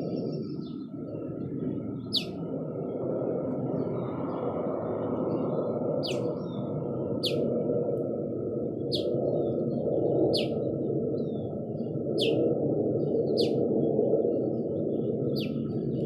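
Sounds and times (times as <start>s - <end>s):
bird chip calls: 2.1s - 2.3s, 6.0s - 6.3s, 8.9s - 9.1s, 10.3s - 10.6s, 13.4s - 13.6s.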